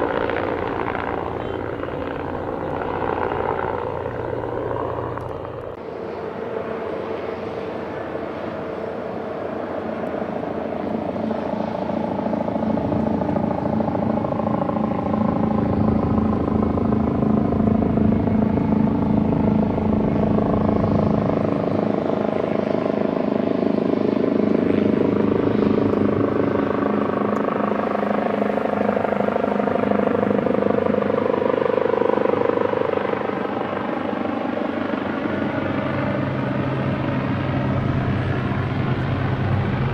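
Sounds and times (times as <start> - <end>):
helicopter turbine engines and rotor: 0.0 - 39.9.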